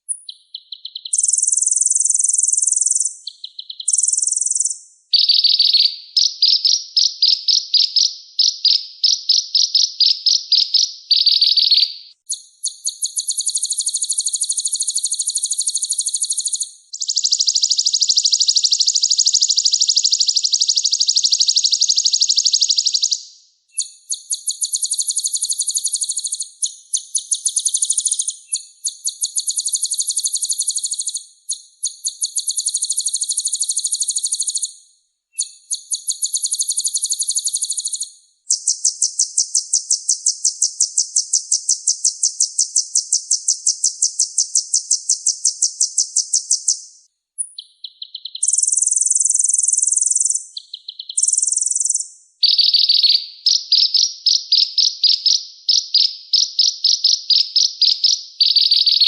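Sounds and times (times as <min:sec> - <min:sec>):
bird singing buzzy trills: 0:00.0 - 0:23.2.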